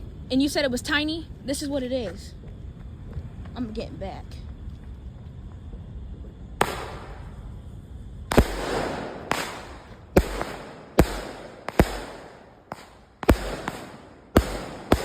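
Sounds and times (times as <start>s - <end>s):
firework bangs: 4.5s - 15.0s.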